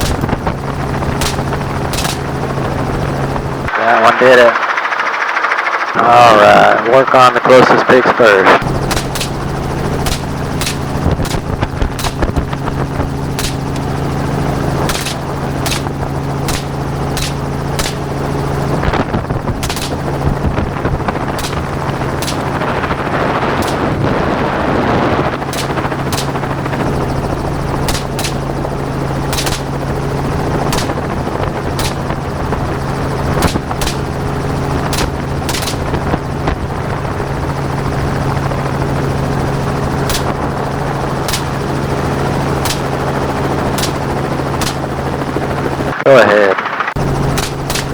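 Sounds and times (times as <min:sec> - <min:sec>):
gunshots: 0:00.0 - 0:00.5, 0:01.2 - 0:02.5, 0:03.7 - 0:12.7, 0:13.4 - 0:13.9, 0:14.8 - 0:18.3, 0:19.5 - 0:27.0, 0:27.8 - 0:30.0, 0:30.6 - 0:32.5, 0:33.4 - 0:36.2, 0:40.1 - 0:40.5, 0:41.2 - 0:41.7, 0:42.6 - 0:43.0, 0:43.7 - 0:44.9, 0:47.3 - 0:47.9
helicopter engine and rotor: 0:00.0 - 0:47.9.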